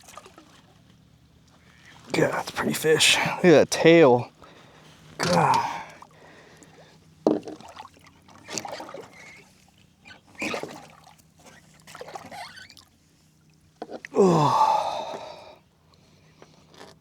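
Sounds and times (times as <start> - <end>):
shallow water splashing: 4.5 - 13.0.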